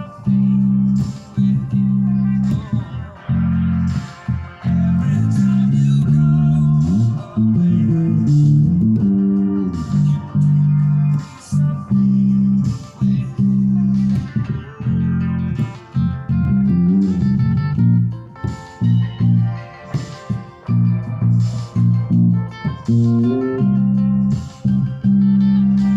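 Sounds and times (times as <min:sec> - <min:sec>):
plucked guitar music: 0:00.0 - 0:25.9
strong bass line: 0:00.0 - 0:25.9.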